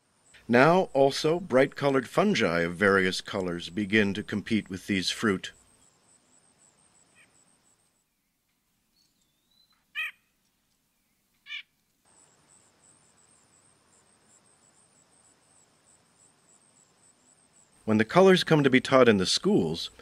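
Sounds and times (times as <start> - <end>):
high insect chirping: 3.5 - 8.1, 11.4 - 17.9
bird short calls: 9.4 - 10.3, 11.4 - 11.7.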